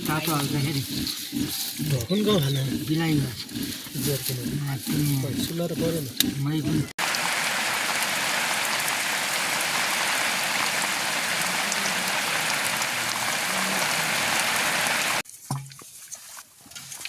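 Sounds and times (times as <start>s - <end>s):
rain falling: 7.0s - 15.2s.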